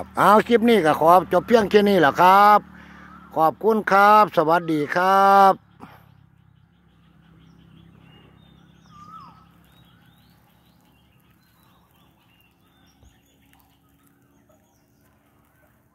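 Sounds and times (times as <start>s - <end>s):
birds chirping: 0.0s - 15.9s
falling bird whistle: 8.0s - 14.6s.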